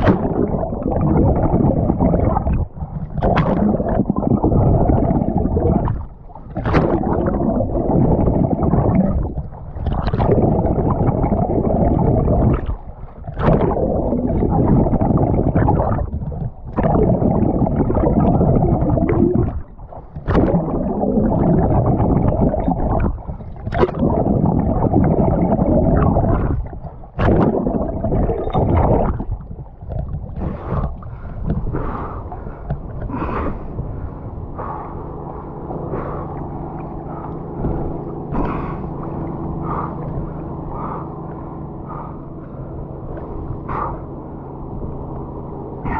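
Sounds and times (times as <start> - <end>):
sharp splash: 0.0 - 0.5, 6.5 - 7.2
swimming water rush and slosh: 0.0 - 45.9.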